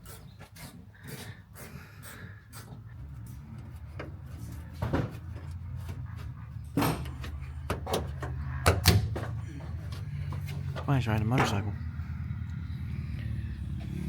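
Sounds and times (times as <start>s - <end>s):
steady low hum: 2.9s - 14.0s
sharp knocks and clunks: 3.9s - 11.7s.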